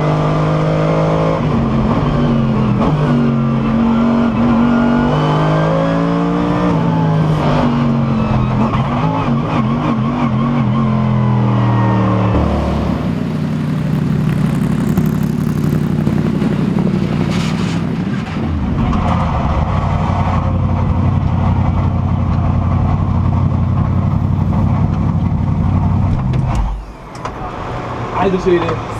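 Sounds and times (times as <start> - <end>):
car engine revving from inside: 12.3 - 14.5.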